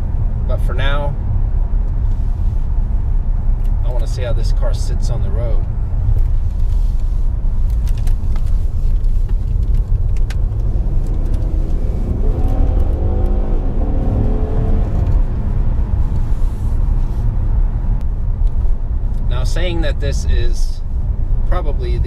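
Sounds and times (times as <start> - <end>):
road and wind rumble: 0.0 - 22.0
car engine pulling: 3.6 - 20.6.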